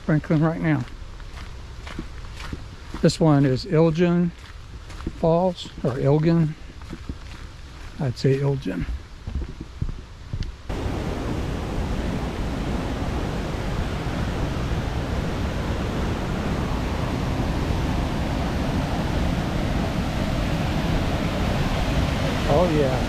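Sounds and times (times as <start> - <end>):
waterfall roaring: 10.7 - 23.0.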